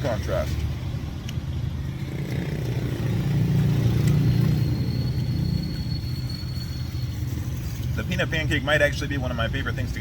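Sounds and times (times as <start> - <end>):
vehicle passing by: 1.8 - 6.0.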